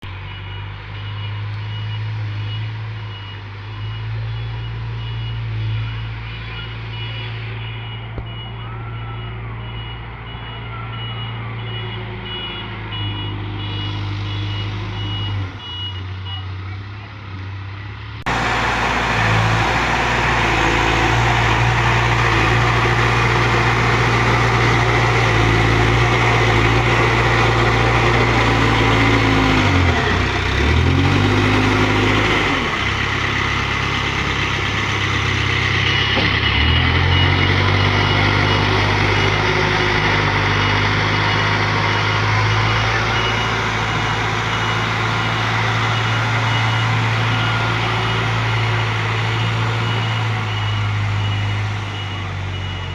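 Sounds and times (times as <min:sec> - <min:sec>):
diesel engine under load: 0:00.0 - 0:52.9
high alarm beeps: 0:00.2 - 0:16.4, 0:35.8 - 0:52.9.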